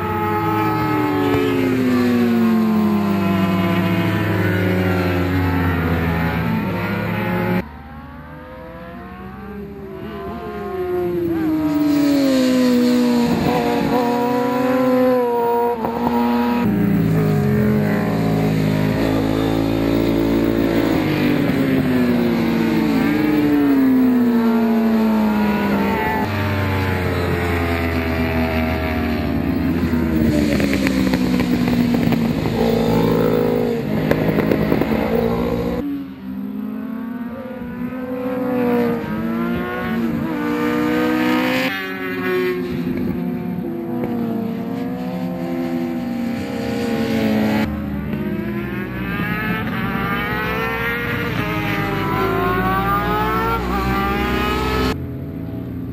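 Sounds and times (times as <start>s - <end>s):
racing motorcycles: 0.0s - 55.9s.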